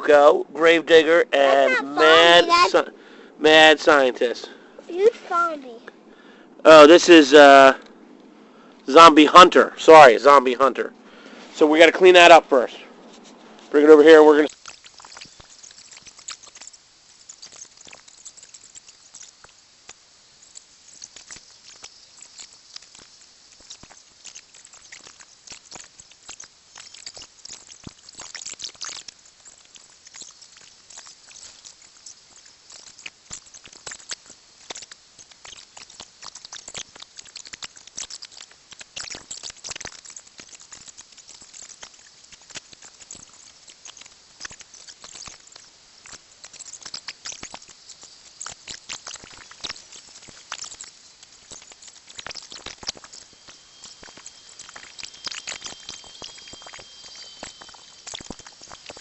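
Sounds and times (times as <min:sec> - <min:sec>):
dry leaves and stems rustling: 0:13.0 - 0:59.0.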